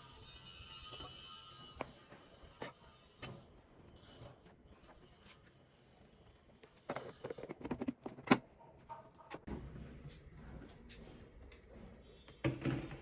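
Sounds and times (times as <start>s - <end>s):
containers and packets handled: 6.6s - 8.6s.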